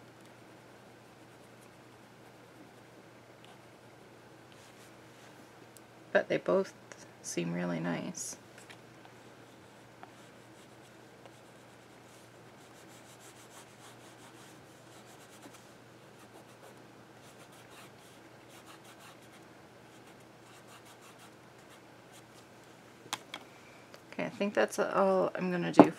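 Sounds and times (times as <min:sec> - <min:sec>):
oil pastel scratching on paper: 0:09.5 - 0:15.6, 0:20.0 - 0:21.8.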